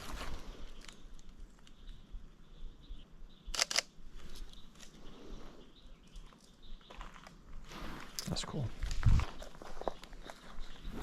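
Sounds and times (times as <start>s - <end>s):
camera shutter double click: 3.5s - 3.9s.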